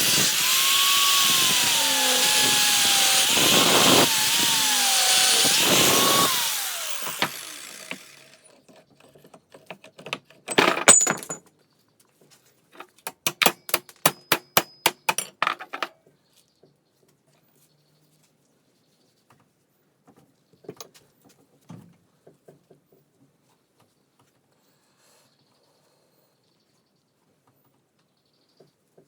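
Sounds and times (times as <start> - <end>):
angle grinder winding down: 0.0 - 8.5
sharp metallic knocks: 13.1 - 15.3.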